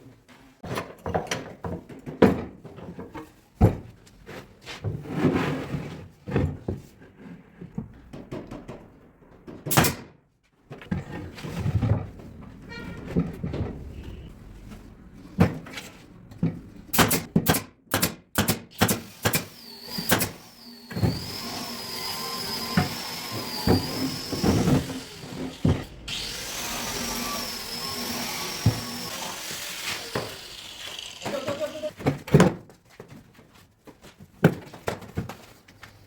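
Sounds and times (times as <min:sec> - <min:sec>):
power tool whining: 0:18.8 - 0:31.9.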